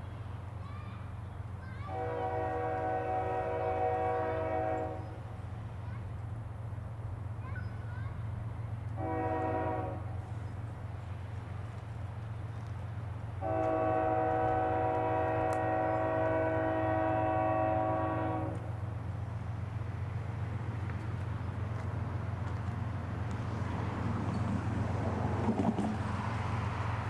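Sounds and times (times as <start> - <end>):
train rumbling past: 0.0 - 27.0
locomotive air horn: 1.9 - 5.2, 9.0 - 10.3, 13.4 - 18.7.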